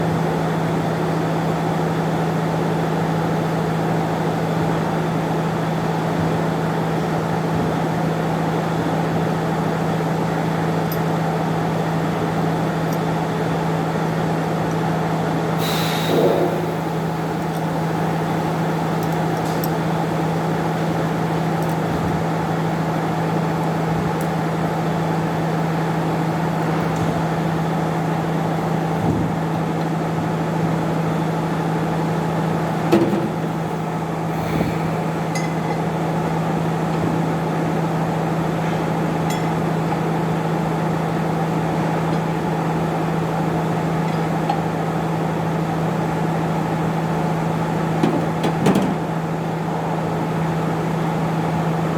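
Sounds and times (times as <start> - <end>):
steady machine hum: 15.6 - 21.7.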